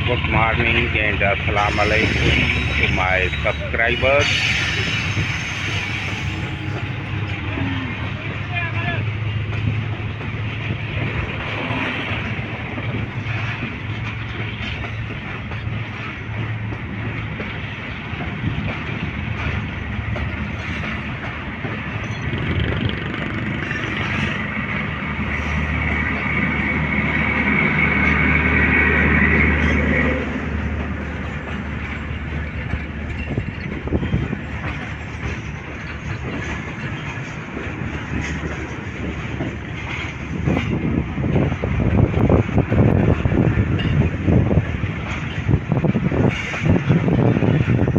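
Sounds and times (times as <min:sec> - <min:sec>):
train rumbling on track: 0:00.0 - 0:47.9
high whining tones: 0:01.6 - 0:07.6.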